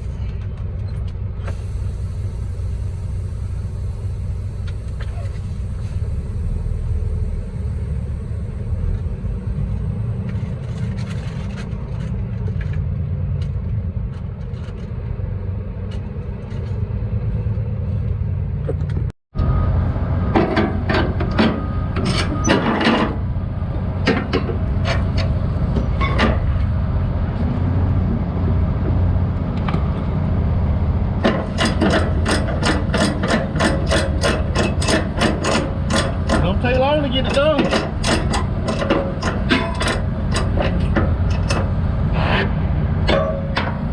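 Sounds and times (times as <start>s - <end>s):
diesel engine idling: 0.0s - 10.8s, 23.2s - 43.9s
metal clanks: 31.2s - 43.9s.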